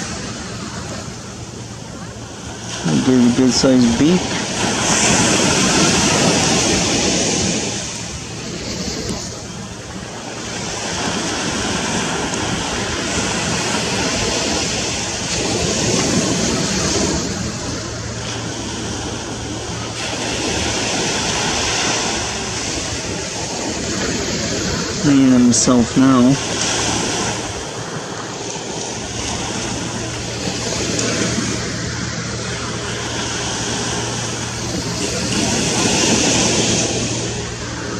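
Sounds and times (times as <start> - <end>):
waves breaking on beach: 0.0 - 37.9.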